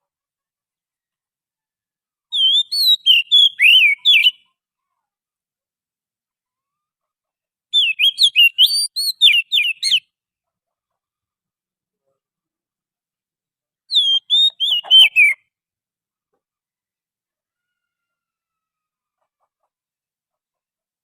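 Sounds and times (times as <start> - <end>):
bird whistling song: 2.3 - 4.4, 7.8 - 10.0, 13.9 - 15.4.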